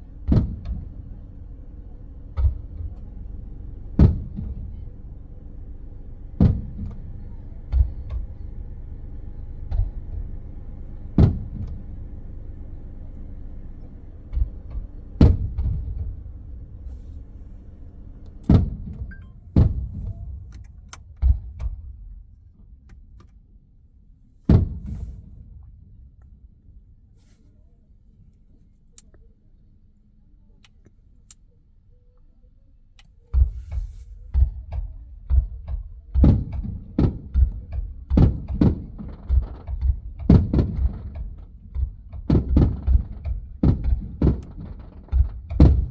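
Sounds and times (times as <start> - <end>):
steady low hum: 0.0 - 45.9
muffled fireworks booms: 14.3 - 16.9, 33.4 - 45.9.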